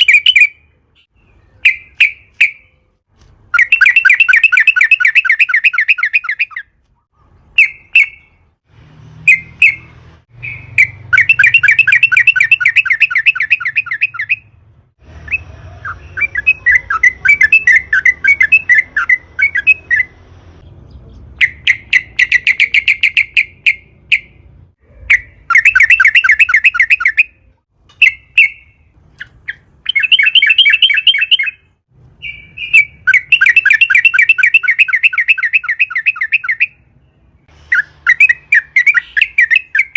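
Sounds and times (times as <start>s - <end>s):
bird singing rolling song: 28.0s - 39.9s.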